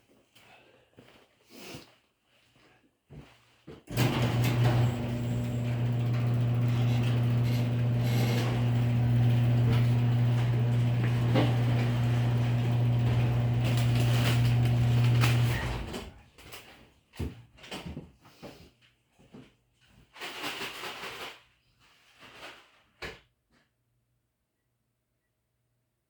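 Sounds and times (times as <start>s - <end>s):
electric motor humming and rattling: 3.9s - 16.2s.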